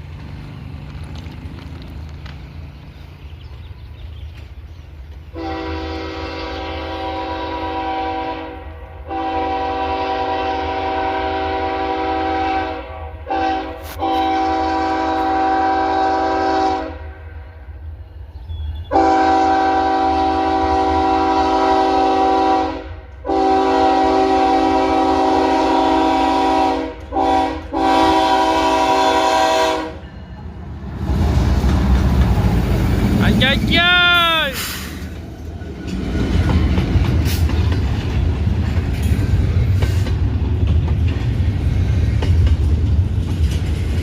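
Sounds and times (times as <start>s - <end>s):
train rumbling past: 0.0s - 44.0s
locomotive air horn: 5.3s - 17.2s, 18.9s - 30.0s.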